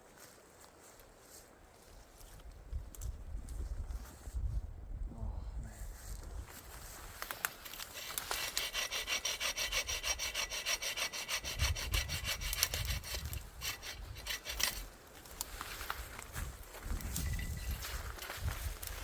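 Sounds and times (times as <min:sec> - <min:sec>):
hand saw cutting tree trunk: 0:07.5 - 0:15.0.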